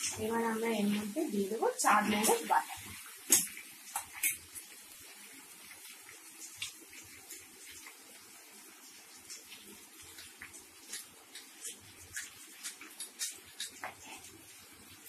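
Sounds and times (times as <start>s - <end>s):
chicken sizzling in a pot: 0.0s - 15.0s.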